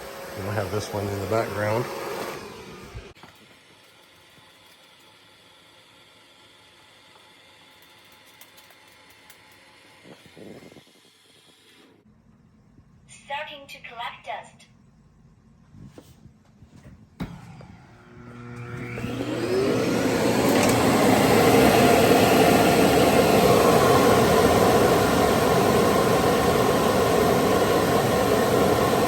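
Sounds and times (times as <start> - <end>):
suction motor whining: 0.0 - 5.2, 8.6 - 12.0, 17.2 - 29.0.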